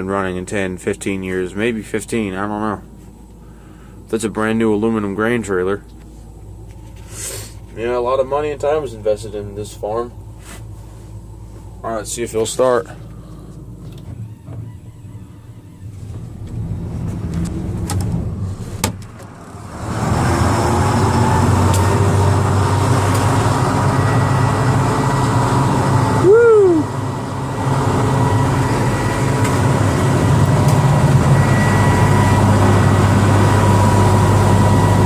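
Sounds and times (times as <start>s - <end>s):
diesel engine cranking and idling: 0.0s - 35.0s
brief rising and falling tone: 14.1s - 35.0s.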